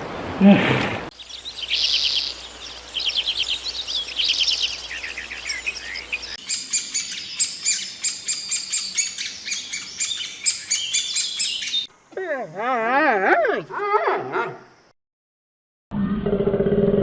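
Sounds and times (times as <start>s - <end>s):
bird sharp high chirps: 1.1s - 11.9s
small birds chirping: 1.1s - 12.0s.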